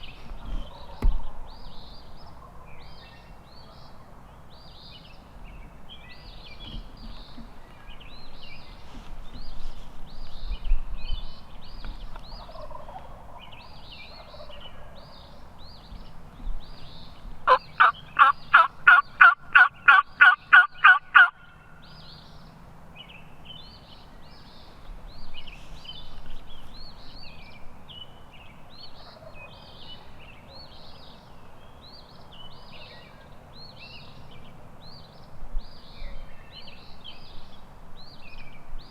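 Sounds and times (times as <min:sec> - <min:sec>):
songbirds chirping: 0:00.0 - 0:38.9
turkey yelps: 0:17.5 - 0:21.4.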